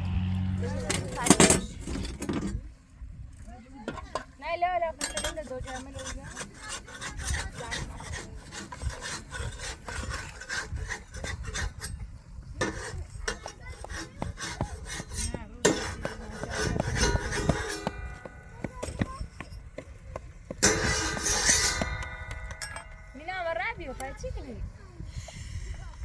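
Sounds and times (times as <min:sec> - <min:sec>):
scraping and rasping: 0:03.9 - 0:24.5.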